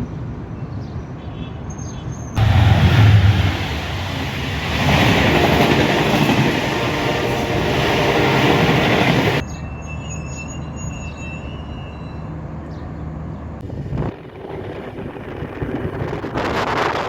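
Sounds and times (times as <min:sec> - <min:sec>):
wheels squealing on rails: 0:02.3 - 0:12.8
train rail noise: 0:02.4 - 0:17.0.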